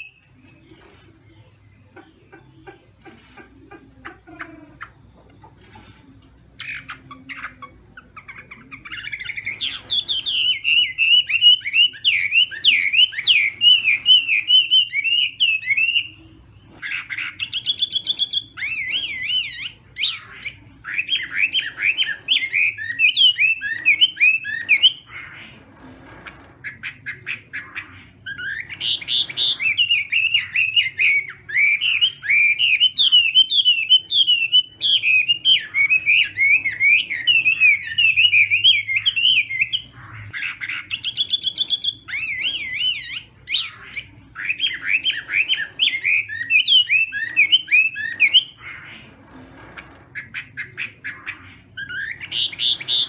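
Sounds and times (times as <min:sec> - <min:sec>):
bird singing whistled phrases: 0:00.0 - 0:00.2, 0:28.2 - 0:48.6.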